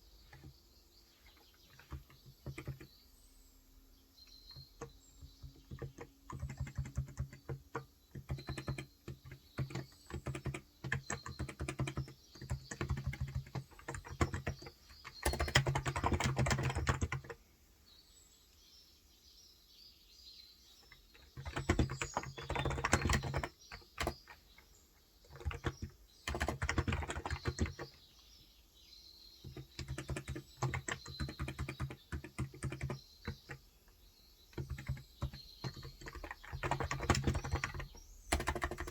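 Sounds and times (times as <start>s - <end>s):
faint bird chirps: 0.0s - 38.9s
typing on a keyboard: 0.2s - 0.5s, 1.3s - 3.0s, 4.5s - 17.4s, 20.9s - 28.0s, 29.4s - 33.8s, 34.5s - 38.9s.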